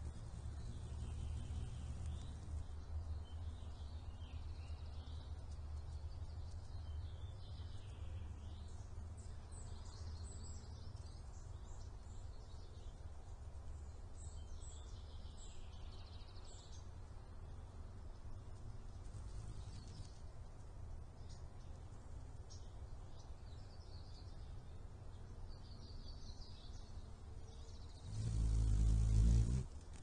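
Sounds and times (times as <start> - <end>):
steady low hum: 0.0 - 9.7, 18.2 - 21.0, 27.8 - 30.0.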